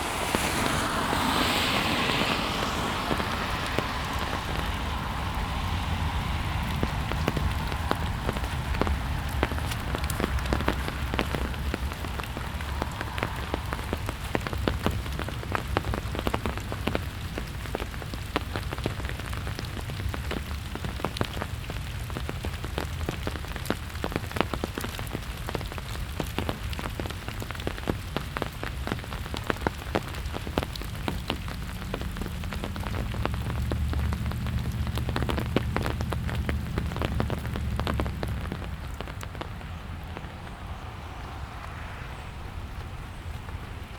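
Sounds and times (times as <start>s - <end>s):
low rumble: 0.0s - 16.8s, 31.8s - 43.9s
rain falling: 0.0s - 43.9s
raindrops ticking: 0.1s - 43.9s.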